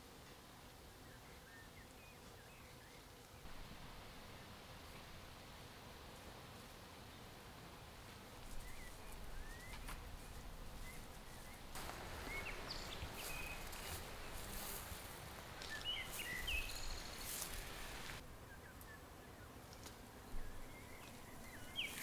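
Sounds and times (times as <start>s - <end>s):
small birds chirping: 8.5s - 19.0s, 20.4s - 22.0s
steady hiss with clicks: 11.8s - 18.2s.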